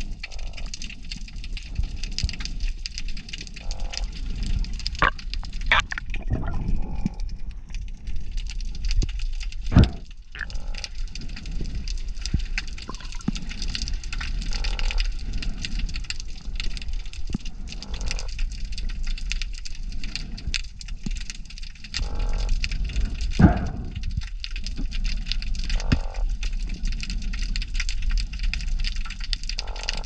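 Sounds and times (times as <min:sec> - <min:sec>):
crackle of clicks: 0:00.0 - 0:30.0
underwater croaks: 0:00.2 - 0:00.8, 0:03.3 - 0:07.2, 0:09.6 - 0:19.2, 0:21.8 - 0:24.2, 0:24.8 - 0:26.7, 0:29.4 - 0:30.0.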